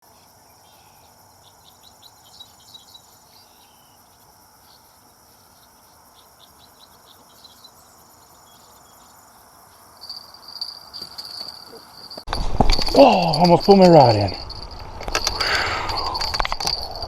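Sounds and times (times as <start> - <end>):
insects trilling: 0.0 - 17.0
insects quick short chirps: 14.1 - 17.0.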